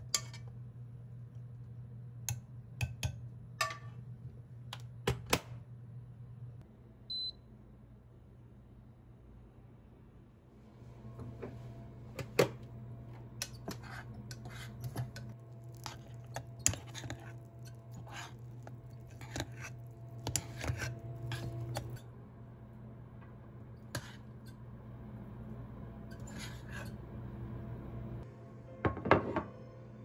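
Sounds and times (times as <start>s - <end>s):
steady low hum: 0.0s - 28.8s
spoon scraping pot: 13.4s - 22.0s, 23.8s - 24.6s, 26.0s - 27.0s.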